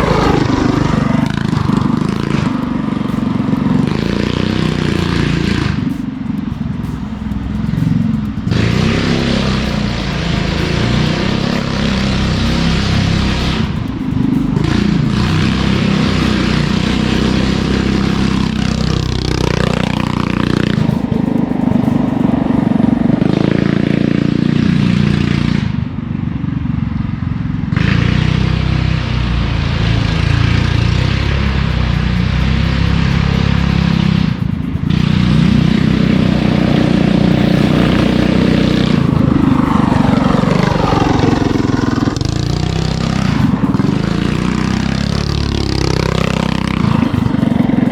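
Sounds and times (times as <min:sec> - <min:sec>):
go-kart engine revving: 0:00.0 - 0:47.9.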